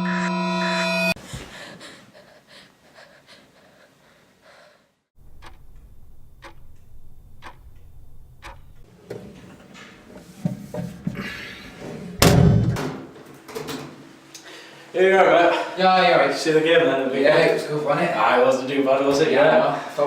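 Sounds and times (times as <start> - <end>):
clock ticking: 5.2 - 8.9.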